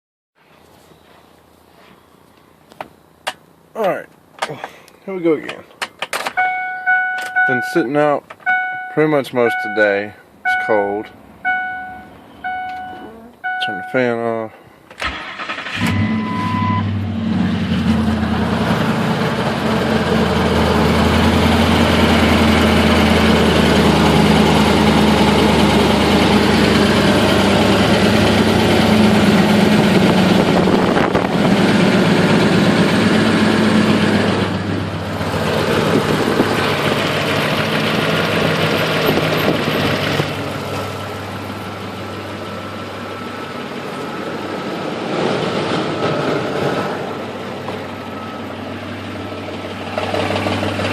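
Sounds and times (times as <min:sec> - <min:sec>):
car engine idling: 0:17.2 - 0:44.7, 0:47.1 - 0:50.9.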